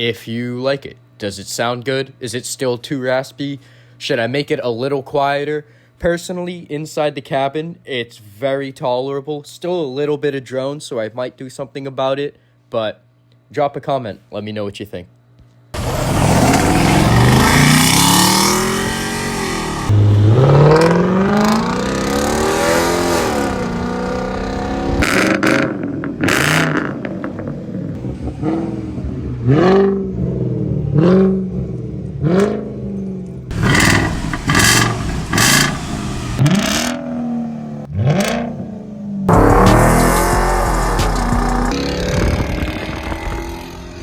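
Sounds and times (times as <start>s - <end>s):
car engine revving: 15.8s - 44.0s.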